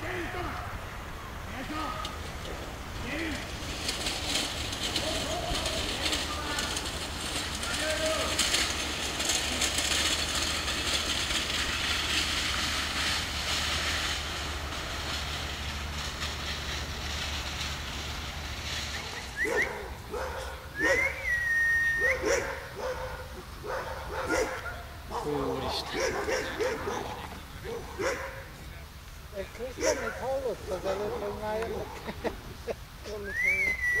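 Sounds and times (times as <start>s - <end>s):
steady rushing noise: 0.0s - 33.6s
huskies yipping and whining: 18.6s - 28.5s, 29.8s - 32.2s.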